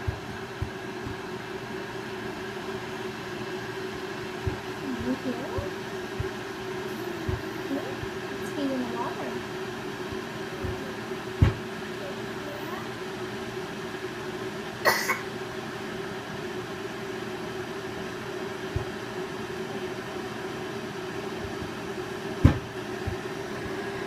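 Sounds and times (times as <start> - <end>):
electric kettle heating water: 0.0 - 24.0
low thump: 11.4 - 11.6, 22.4 - 23.2.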